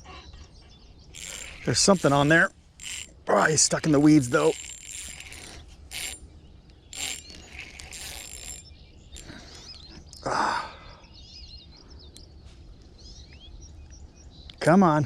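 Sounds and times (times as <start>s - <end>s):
birds chirping: 0.0s - 15.0s
fishing reel cranking: 1.1s - 6.3s, 6.9s - 9.7s.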